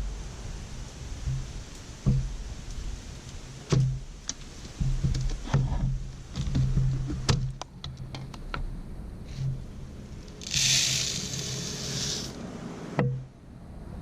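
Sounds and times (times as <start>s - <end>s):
feeder clicks and rattles: 10.3s - 12.4s
bird seed pouring: 10.4s - 12.3s.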